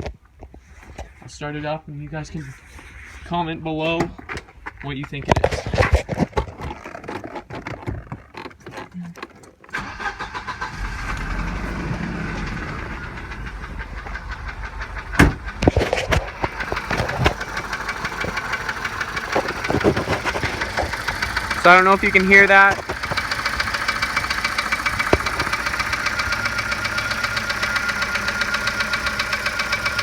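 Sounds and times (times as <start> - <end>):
car engine running rough: 9.8 - 30.0
sharp engine knocks: 11.1 - 30.0.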